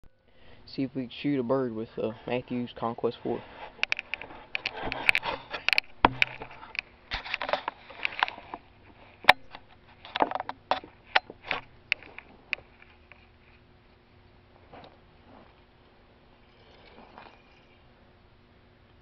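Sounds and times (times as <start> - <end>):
rustling and handling noise: 1.9 - 16.1.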